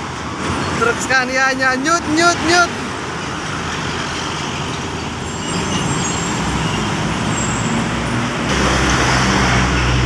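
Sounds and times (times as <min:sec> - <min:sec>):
road traffic noise: 0:00.0 - 0:10.0
diesel truck engine running: 0:08.4 - 0:10.0.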